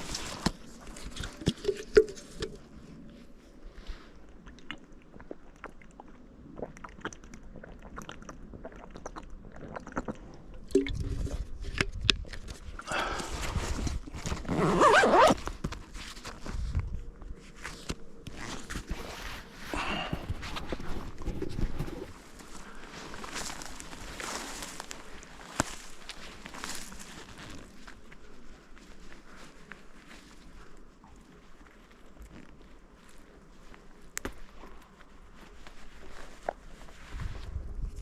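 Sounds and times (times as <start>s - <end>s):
footsteps crunching through brush: 13.0s - 38.0s.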